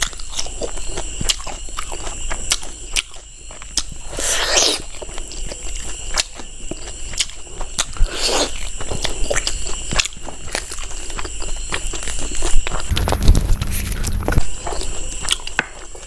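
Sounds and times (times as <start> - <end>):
wet chewing and lip smacking: 0.0 - 16.0.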